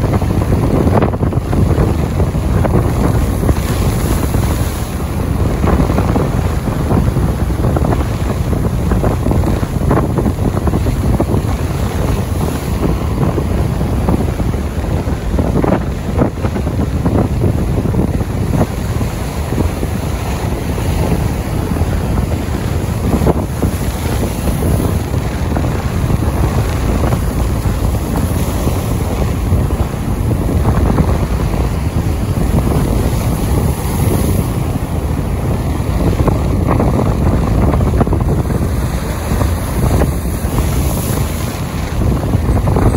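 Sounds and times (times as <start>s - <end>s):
wind rumbling on microphone: 0.0s - 42.9s.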